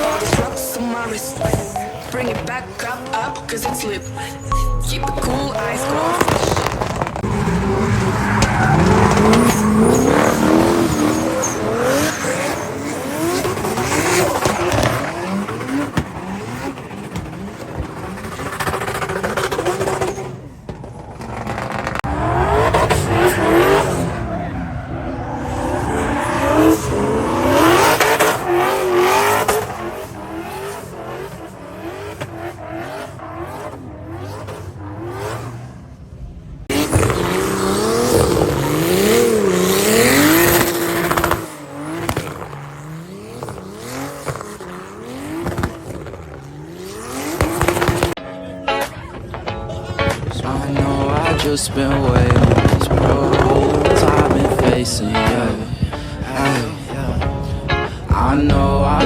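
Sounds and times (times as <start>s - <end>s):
car engines revving hard: 0.0s - 48.2s, 48.8s - 59.0s
tyres squealing: 5.4s - 35.0s.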